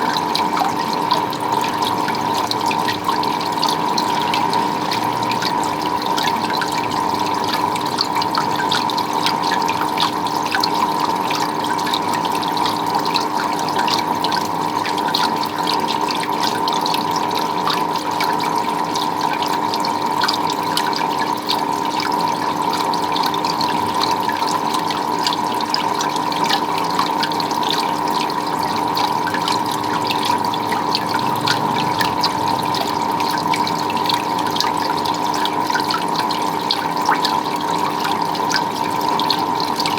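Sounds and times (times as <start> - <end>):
water dripping: 0.0 - 39.9
water running and splashing: 0.0 - 39.9
constant hum: 28.0 - 35.4.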